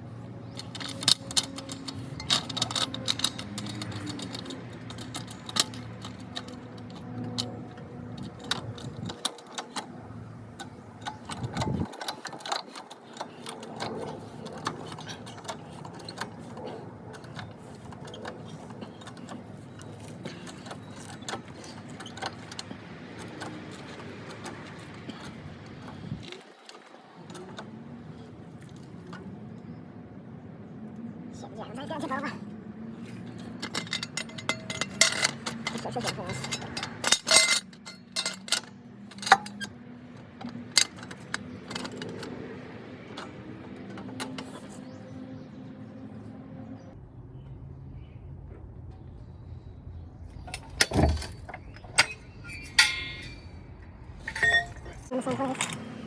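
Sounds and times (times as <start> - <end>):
car engine and road noise: 0.0 - 56.0
sharp clicks and rattles: 0.4 - 29.8, 33.0 - 45.6.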